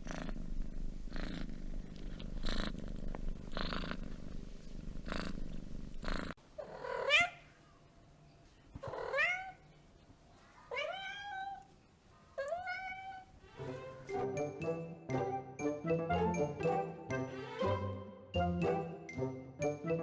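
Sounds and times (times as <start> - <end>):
cat purring: 0.0 - 7.1
cat meowing: 10.7 - 11.7, 12.4 - 13.4.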